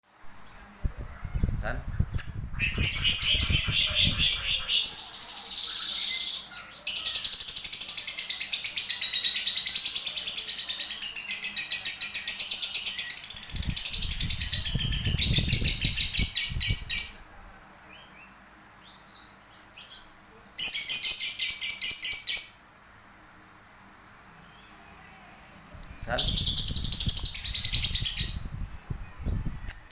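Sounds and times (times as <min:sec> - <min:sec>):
lovebird chattering: 0:00.9 - 0:17.2.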